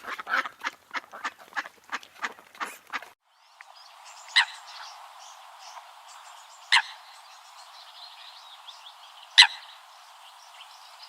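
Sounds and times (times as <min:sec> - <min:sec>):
faint bird chirping: 0:03.2 - 0:11.0.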